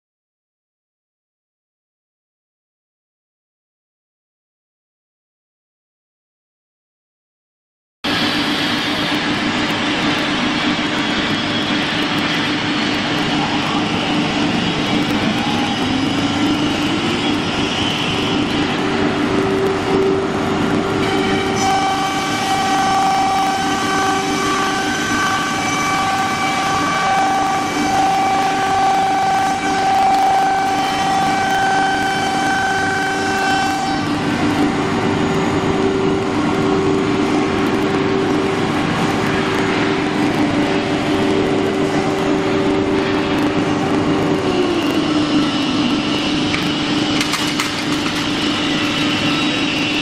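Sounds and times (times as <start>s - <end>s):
wood router machine running: 11.8s - 40.0s.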